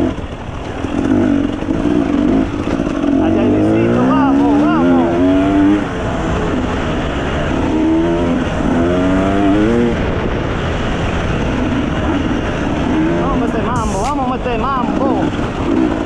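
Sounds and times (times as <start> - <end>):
dirt bike engine revving: 0.0 - 16.0
wind and riding noise: 0.0 - 16.0.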